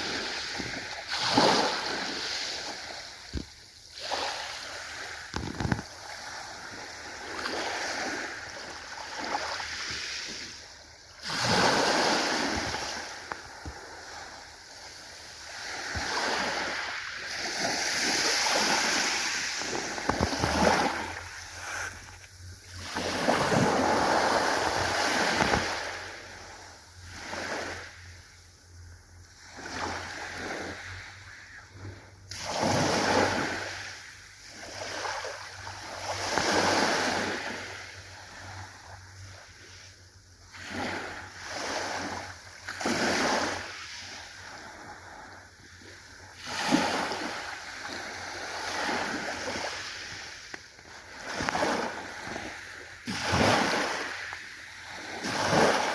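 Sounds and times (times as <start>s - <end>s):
ocean waves breaking: 0.0s - 28.0s, 29.4s - 39.8s, 40.5s - 55.9s.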